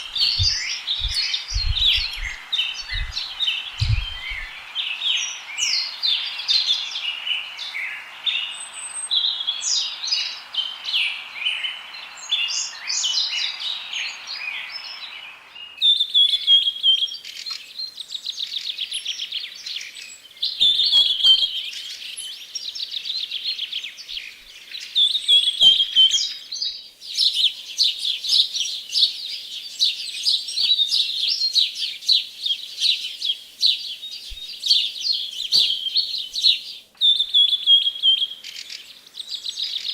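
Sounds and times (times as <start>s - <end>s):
steady rushing hiss: 0.0s - 15.6s, 25.6s - 36.9s
songbirds chirping and singing: 0.0s - 39.9s.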